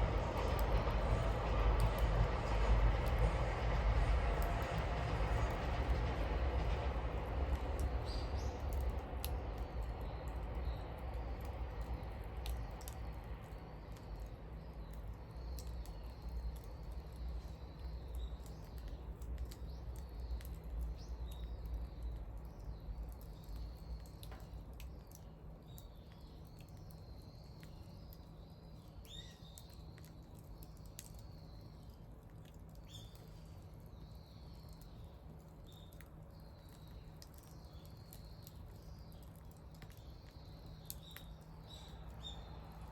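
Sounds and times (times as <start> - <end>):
low rumble: 0.0 - 13.5
wood fire crackling and popping: 0.0 - 27.0, 28.8 - 42.9
small birds chirping: 13.5 - 42.9.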